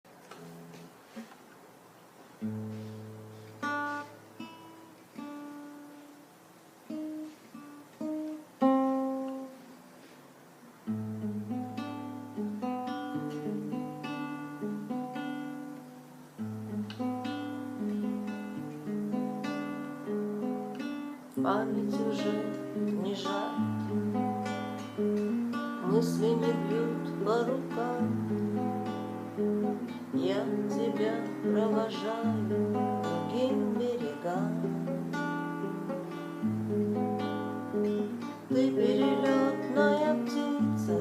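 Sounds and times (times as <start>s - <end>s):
acoustic guitar playing: 0.0s - 41.0s.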